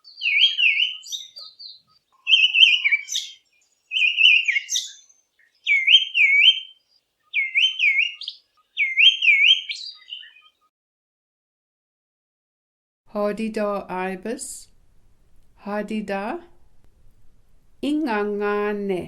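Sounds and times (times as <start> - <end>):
thrush singing whistled phrases: 0.0 - 10.6.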